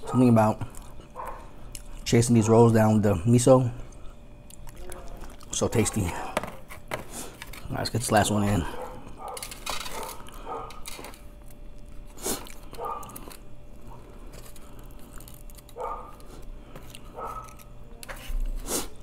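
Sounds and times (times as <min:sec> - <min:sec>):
person chewing: 0:00.6 - 0:02.1, 0:03.9 - 0:06.0, 0:10.0 - 0:19.0.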